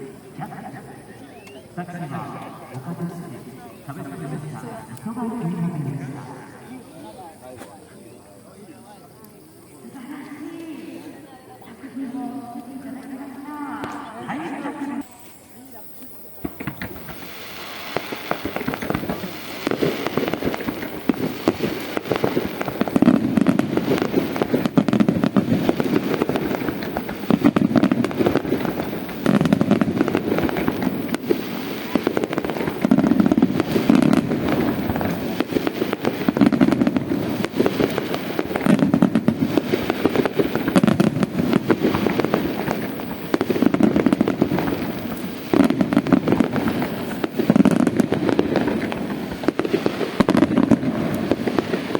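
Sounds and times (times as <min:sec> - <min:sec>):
fireworks crackling: 0:00.0 - 0:07.9, 0:08.6 - 0:51.9
firework shells booming: 0:16.1 - 0:51.9.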